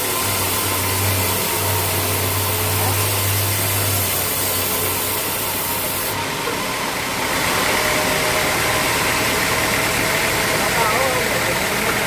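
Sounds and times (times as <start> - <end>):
sawmill machinery running: 0.0 - 12.0.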